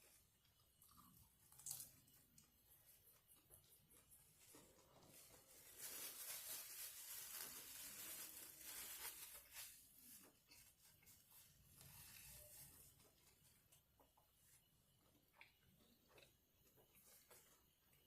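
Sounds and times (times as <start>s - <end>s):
faint eating sounds: 0.0s - 18.0s
food wrapper crinkling: 5.0s - 10.7s.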